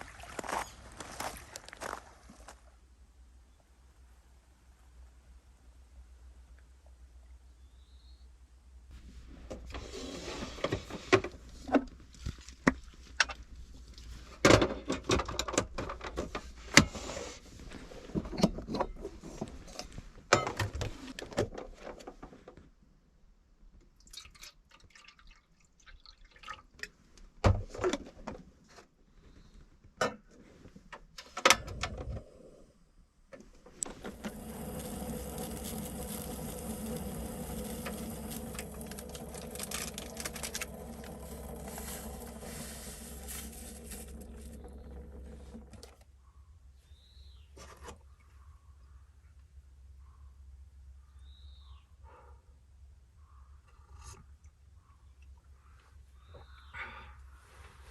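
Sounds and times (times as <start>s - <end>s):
steady hum: 33.8s - 46.0s.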